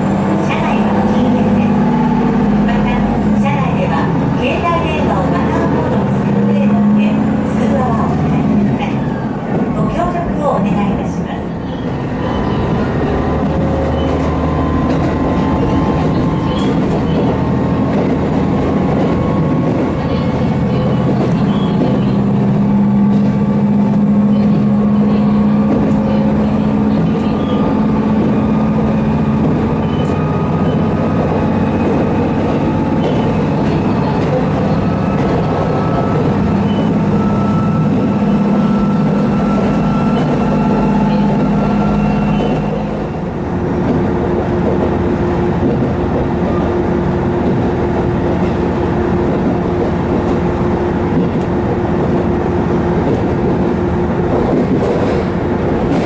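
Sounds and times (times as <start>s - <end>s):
diesel engine drone: 0.0s - 56.0s
train track rumble: 0.0s - 56.0s.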